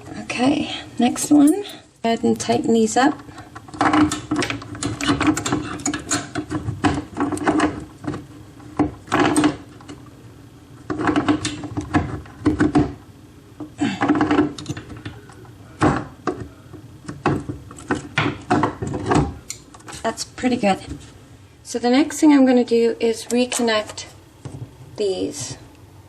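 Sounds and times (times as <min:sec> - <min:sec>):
tools clicking and scraping on fittings: 0:03.3 - 0:06.6.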